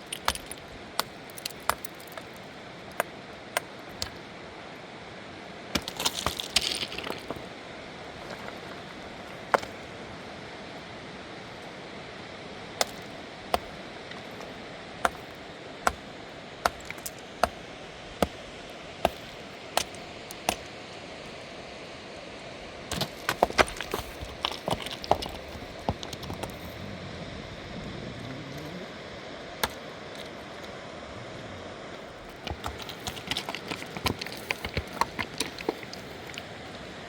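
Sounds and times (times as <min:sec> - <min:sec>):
steady rushing hiss: 0:00.0 - 0:37.0
rustling handling sounds: 0:32.1 - 0:37.0.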